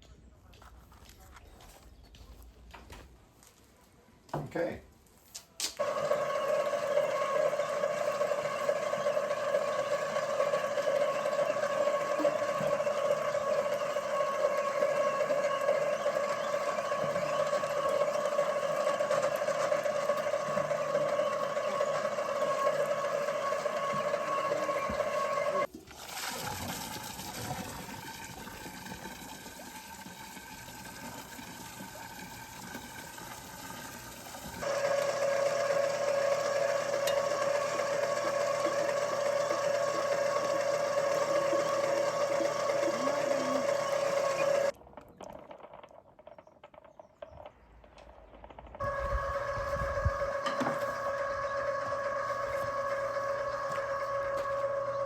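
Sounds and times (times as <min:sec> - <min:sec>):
machine humming: 0:05.8 - 0:25.7, 0:28.1 - 0:44.7, 0:48.8 - 0:55.0.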